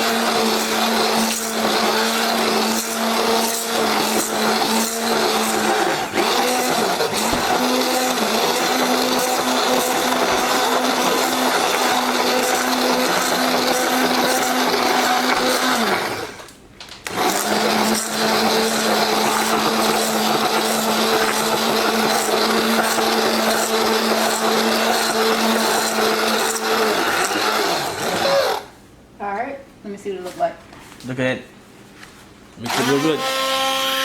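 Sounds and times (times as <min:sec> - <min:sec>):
electric hand mixer humming: 0:00.0 - 0:16.4, 0:17.1 - 0:28.7, 0:32.7 - 0:34.0.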